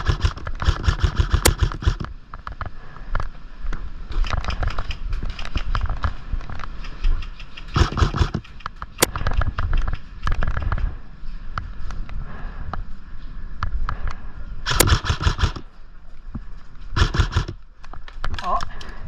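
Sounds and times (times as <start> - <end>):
airsoft guns firing: 0.0 - 2.0, 7.8 - 8.4, 14.7 - 15.7, 17.0 - 17.6.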